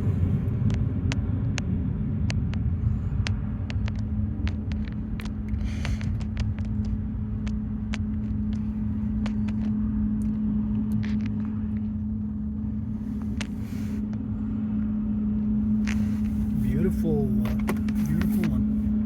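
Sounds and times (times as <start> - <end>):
car engine rumble inside car: 0.0 - 19.0.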